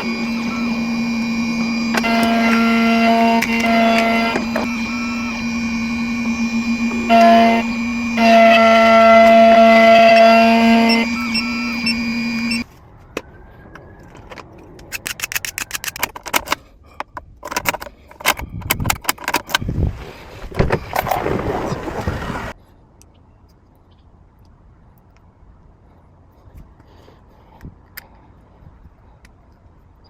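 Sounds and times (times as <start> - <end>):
steady pitched tone: 0.0 - 12.6.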